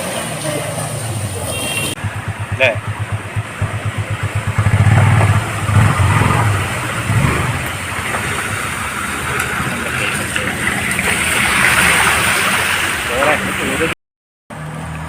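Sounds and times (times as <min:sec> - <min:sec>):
vehicle engine idling and revving: 0:00.0 - 0:13.9, 0:14.5 - 0:15.0.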